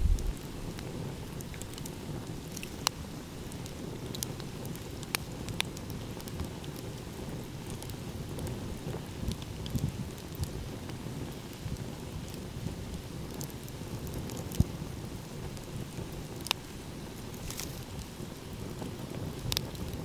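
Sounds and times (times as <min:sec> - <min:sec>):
ocean waves rumbling: 0:00.0 - 0:00.4
wood fire crackling and popping: 0:00.0 - 0:20.0.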